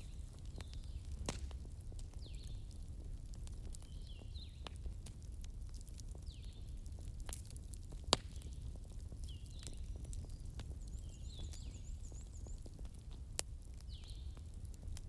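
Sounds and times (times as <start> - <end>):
wood fire crackling: 0.0 - 15.0
sharp pop of fire: 1.2 - 1.5, 8.1 - 8.4.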